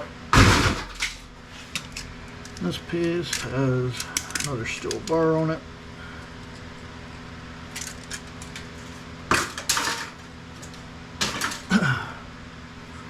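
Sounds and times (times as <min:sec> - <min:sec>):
sharp metal clanks: 0:00.4 - 0:01.2
printer parts clattering: 0:11.2 - 0:11.7.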